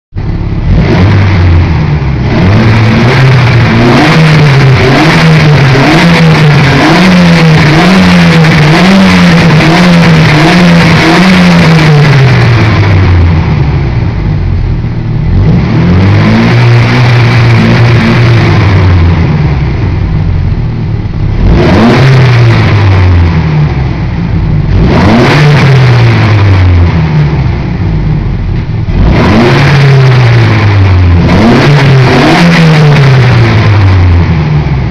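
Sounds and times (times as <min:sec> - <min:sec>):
car engine revving loudly: 0:00.2 - 0:34.9.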